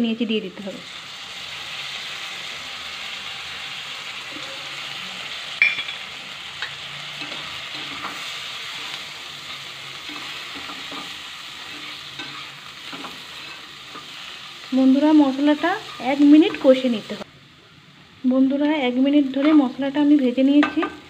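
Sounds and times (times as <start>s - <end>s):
vegetables sizzling in hot oil: 0.0s - 21.0s
spatula scraping and knocking pan: 10.0s - 14.2s.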